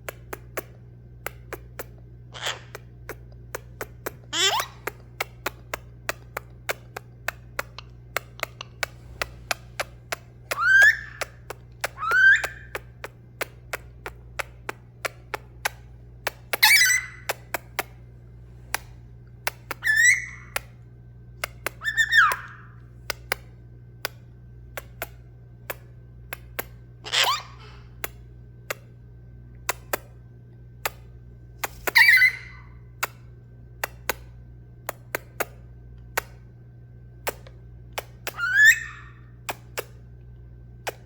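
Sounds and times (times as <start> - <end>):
low steady hum: 0.0 - 41.0
parrot whistled calls: 4.4 - 4.8, 10.5 - 12.8, 16.5 - 17.3, 19.7 - 20.7, 21.8 - 22.8, 27.1 - 27.8, 31.8 - 32.8, 38.3 - 39.3.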